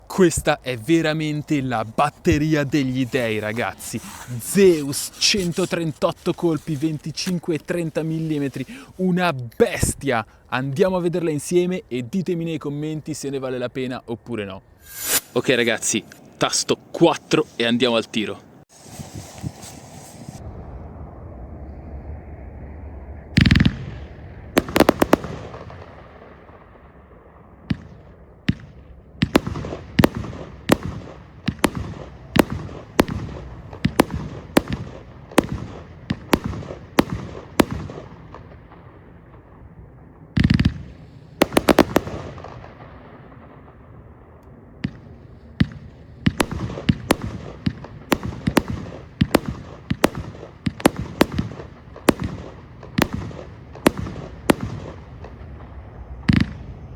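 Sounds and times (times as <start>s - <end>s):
heavy firework booms: 23.3s - 39.6s, 40.3s - 43.9s, 44.8s - 56.8s
firework shots firing: 23.4s - 26.8s, 27.6s - 39.4s, 40.4s - 43.8s, 44.8s - 56.7s.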